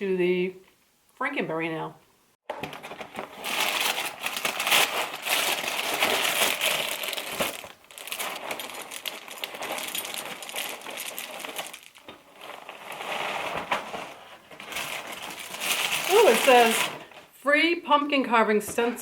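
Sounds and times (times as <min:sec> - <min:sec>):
plastic bag crinkling: 0:02.5 - 0:17.2.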